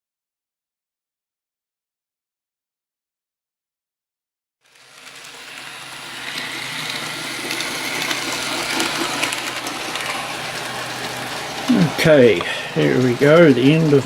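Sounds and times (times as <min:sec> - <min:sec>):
faint motor hum: 0:04.6 - 0:14.0
model train wheels rolling on track: 0:04.6 - 0:14.0.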